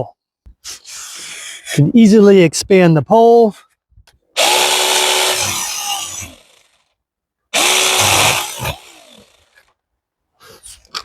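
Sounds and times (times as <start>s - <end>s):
mini chainsaw cutting branch: 4.4s - 6.9s, 7.6s - 9.7s.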